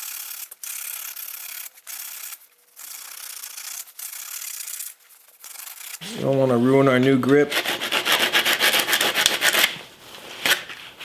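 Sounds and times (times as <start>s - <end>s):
hand scraping an edge smooth: 5.5s - 11.0s.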